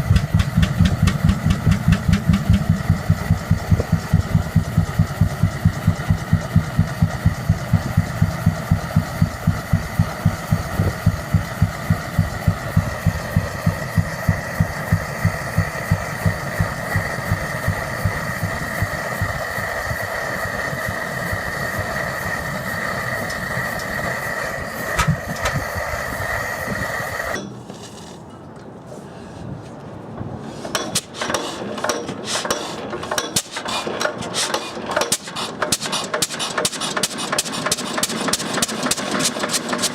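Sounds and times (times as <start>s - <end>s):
scattered clicks and knocks: 0.0s - 19.6s, 24.9s - 25.7s, 30.2s - 39.9s
engine pulsing beat: 0.0s - 27.4s
high whine: 0.0s - 27.5s.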